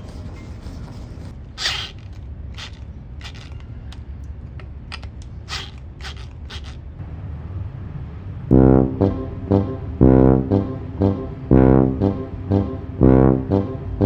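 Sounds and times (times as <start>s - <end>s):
loud music: 8.5s - 14.0s.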